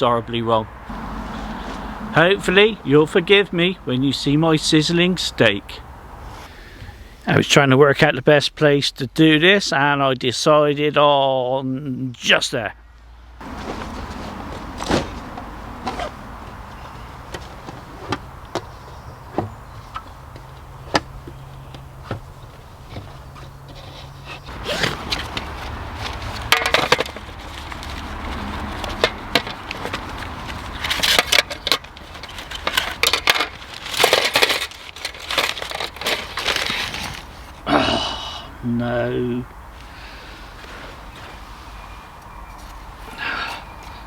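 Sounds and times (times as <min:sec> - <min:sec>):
rustling and scraping: 0:13.4 - 0:37.6
cooking gear clicks and knocks: 0:24.5 - 0:37.3.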